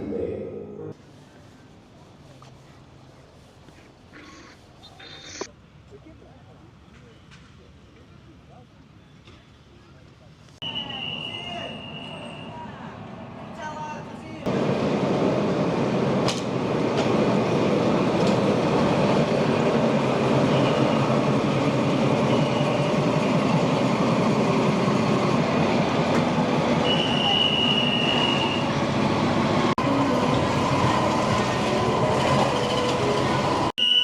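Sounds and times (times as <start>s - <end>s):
train rumbling on rails: 10.6s - 33.8s.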